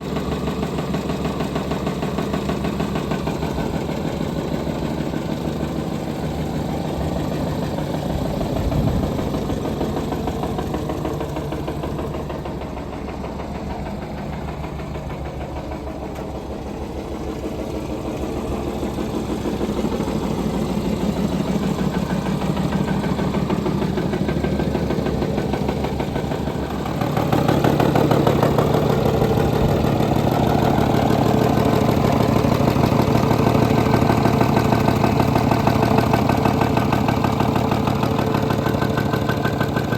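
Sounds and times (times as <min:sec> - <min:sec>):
car engine running with knock: 0:00.0 - 0:39.9.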